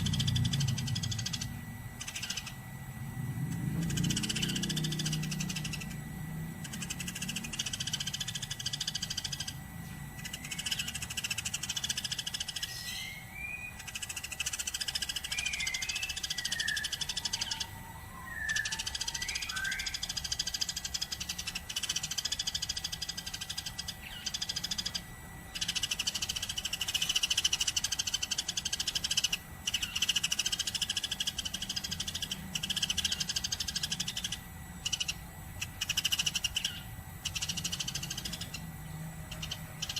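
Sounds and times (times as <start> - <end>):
sparrow chattering: 0.0 - 2.7, 3.3 - 39.9
sliding chirps: 0.0 - 39.9.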